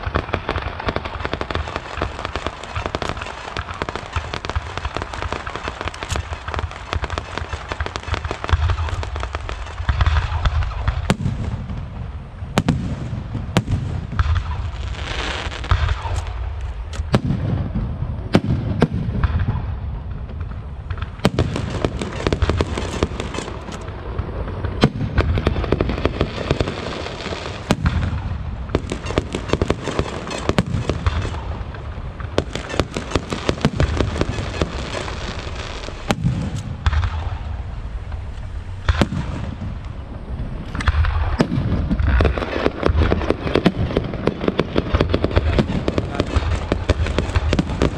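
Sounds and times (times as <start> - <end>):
fireworks bangs and cracks: 0.0 - 47.9
steady low rumble: 15.7 - 47.9.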